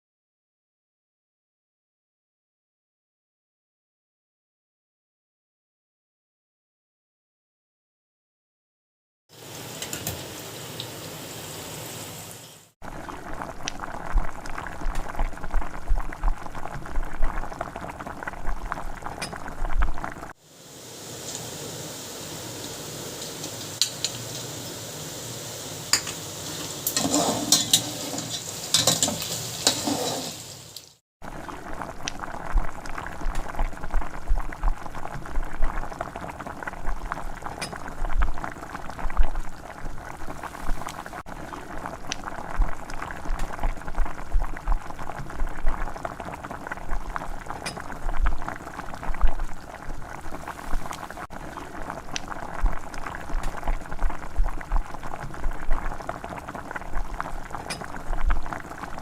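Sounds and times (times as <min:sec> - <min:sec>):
stew bubbling in a pot: 0:12.8 - 0:59.0
steady hiss: 0:20.4 - 0:27.0.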